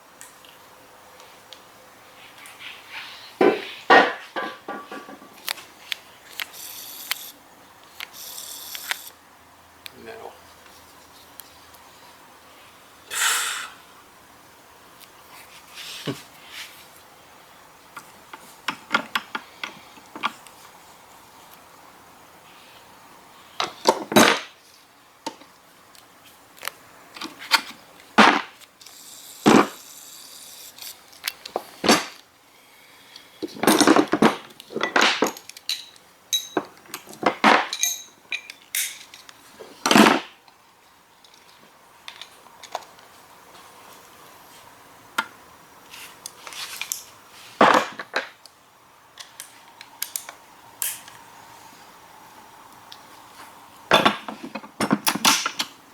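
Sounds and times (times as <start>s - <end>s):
metal tools and parts clanking: 33.6s - 39.2s.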